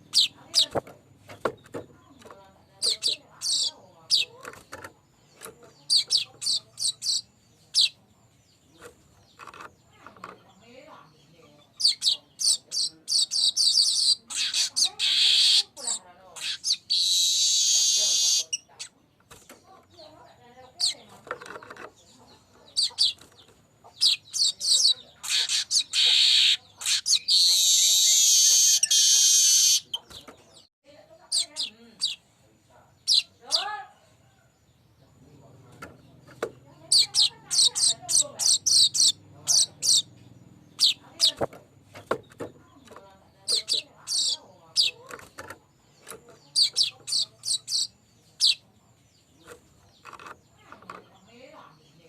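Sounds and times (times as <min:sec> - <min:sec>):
bird chattering: 0:00.0 - 0:32.3, 0:32.9 - 0:33.8, 0:35.1 - 0:52.0
wheezy buzzing bird phrases: 0:11.7 - 0:18.8, 0:23.9 - 0:30.0, 0:36.8 - 0:41.6.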